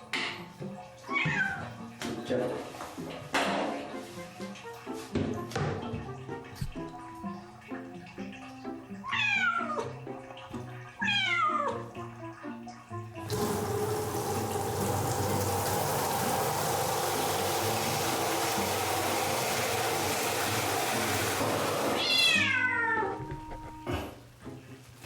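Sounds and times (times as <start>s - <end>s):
running water: 0.0s - 22.6s
kitten meowing: 22.0s - 23.1s.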